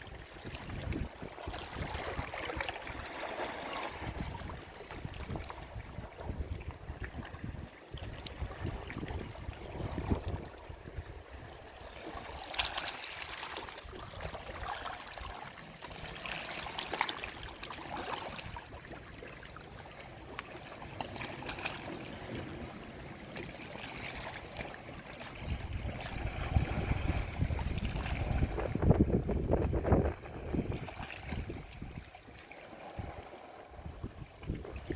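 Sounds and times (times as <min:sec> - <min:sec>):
water trickling and gurgling: 0:00.0 - 0:34.9
sea waves washing ashore: 0:07.5 - 0:34.9.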